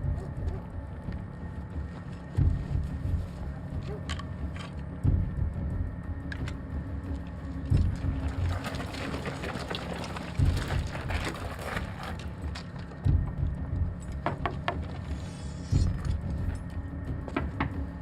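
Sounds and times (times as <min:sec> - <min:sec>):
steady low hum: 0:00.0 - 0:18.0
deep thuds: 0:02.4 - 0:03.6, 0:13.0 - 0:14.8.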